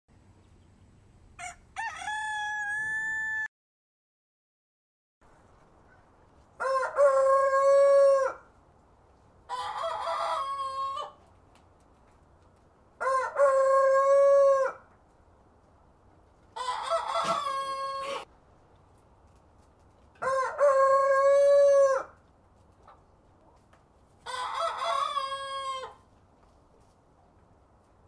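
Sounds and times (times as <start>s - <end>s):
rooster crowing: 1.4s - 3.5s, 6.6s - 8.4s, 9.5s - 11.2s, 13.0s - 14.8s, 16.6s - 18.3s, 20.2s - 22.2s, 24.3s - 26.0s.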